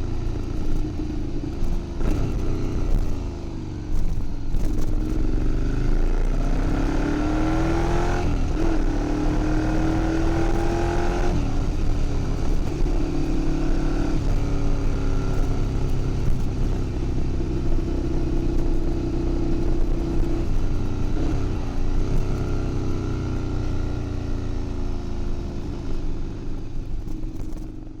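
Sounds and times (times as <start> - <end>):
loud motorcycle engine revving: 2.0 - 3.3, 4.6 - 16.3.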